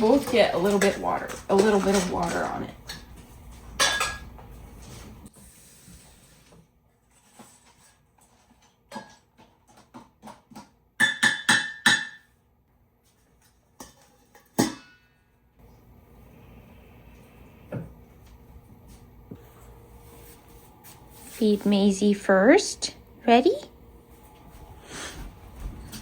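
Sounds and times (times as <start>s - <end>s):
dog bowls and spoon clinking: 0.0s - 4.6s.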